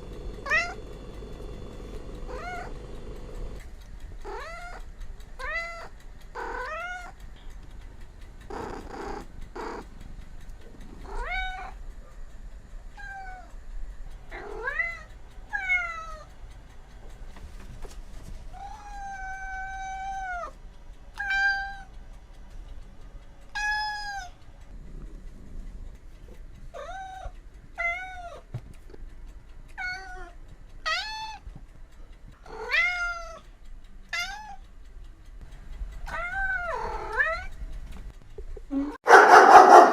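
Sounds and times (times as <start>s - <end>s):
cat meowing: 0.4s - 0.8s, 2.3s - 2.8s, 4.3s - 4.8s, 5.4s - 7.2s, 11.0s - 11.8s, 18.6s - 20.5s, 23.6s - 24.4s, 32.5s - 33.4s, 34.1s - 34.6s, 36.1s - 37.6s.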